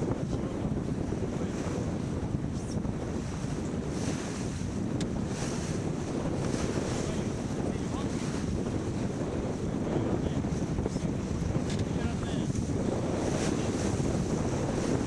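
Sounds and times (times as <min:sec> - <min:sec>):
water washing along hull: 0:00.0 - 0:15.0
wind buffeting microphone: 0:00.0 - 0:15.0.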